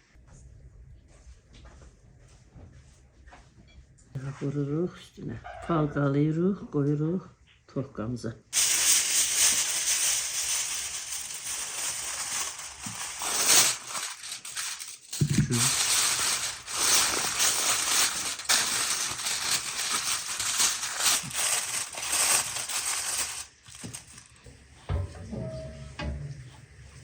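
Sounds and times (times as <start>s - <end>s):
rustling and crinkling handling noise: 8.6s - 25.5s.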